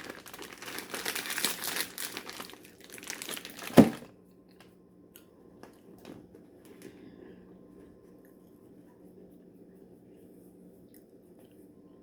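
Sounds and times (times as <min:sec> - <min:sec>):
plastic packaging crinkling: 0:00.0 - 0:04.1.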